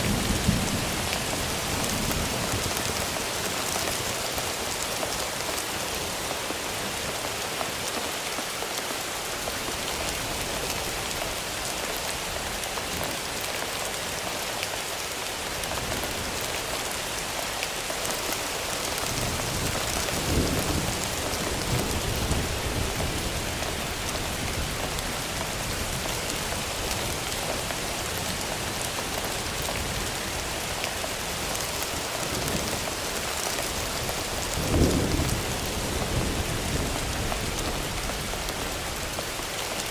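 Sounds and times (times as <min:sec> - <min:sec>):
rain falling: 0:00.0 - 0:39.9
thunder rumbling: 0:32.3 - 0:39.1.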